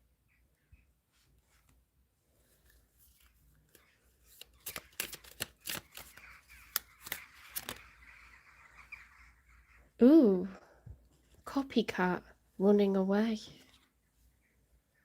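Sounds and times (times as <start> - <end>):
cards being shuffled: 2.6 - 7.8.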